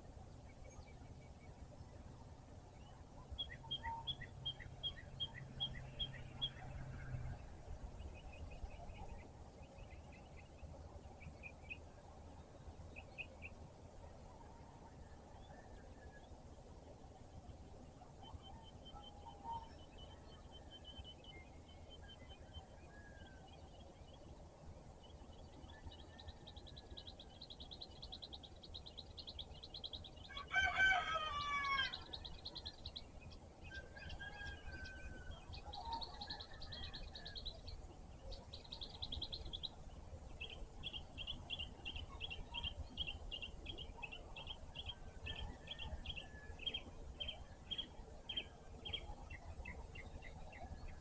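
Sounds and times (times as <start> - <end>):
songbirds singing: 0.0 - 51.0
rooster crowing: 30.3 - 32.1, 33.7 - 37.4.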